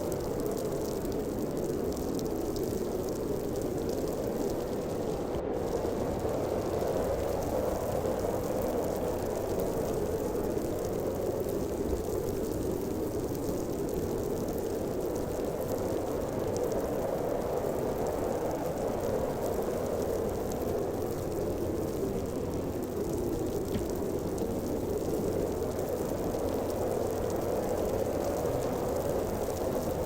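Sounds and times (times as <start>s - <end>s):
howling storm wind: 0.0s - 30.0s
faint ticks: 18.9s - 28.8s.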